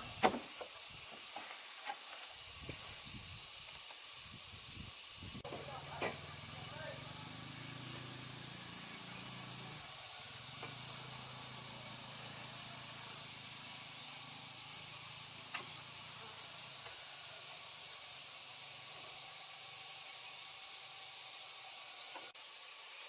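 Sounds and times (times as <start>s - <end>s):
high-pitched hiss: 0.0s - 23.0s.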